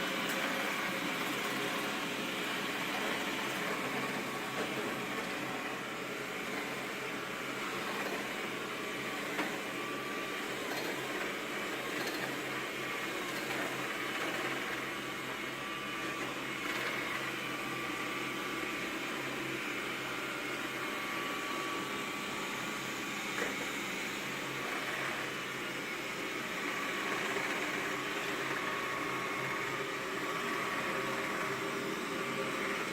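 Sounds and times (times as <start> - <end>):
robot vacuum cleaner running: 0.0 - 32.9.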